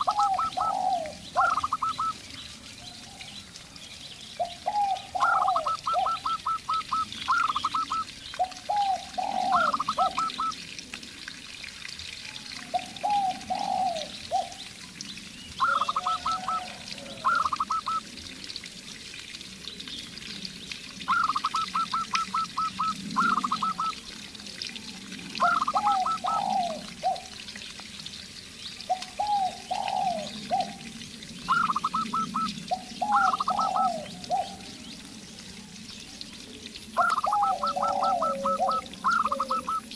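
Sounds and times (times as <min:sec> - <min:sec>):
dove cooing low falling coos: 0:00.0 - 0:02.2, 0:04.4 - 0:10.8, 0:12.2 - 0:18.6, 0:21.0 - 0:27.7, 0:28.9 - 0:35.8, 0:36.7 - 0:39.9
dove cooing rapid high coos: 0:00.0 - 0:02.2, 0:04.4 - 0:10.6, 0:12.7 - 0:14.6, 0:15.6 - 0:18.1, 0:21.1 - 0:24.0, 0:25.4 - 0:27.4, 0:28.9 - 0:34.8, 0:37.0 - 0:39.9.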